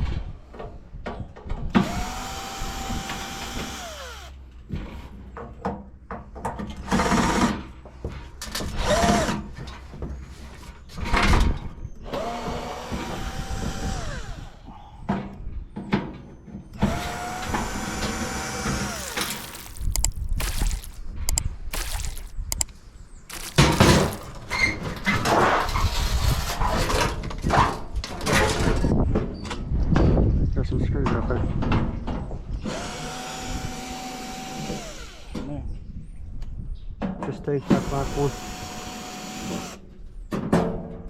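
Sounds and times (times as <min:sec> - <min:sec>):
cordless drill whining: 0:01.8 - 0:04.4, 0:08.8 - 0:09.4, 0:12.1 - 0:14.7, 0:16.8 - 0:21.0, 0:21.7 - 0:22.7, 0:23.3 - 0:24.3, 0:32.7 - 0:35.4, 0:37.6 - 0:39.8.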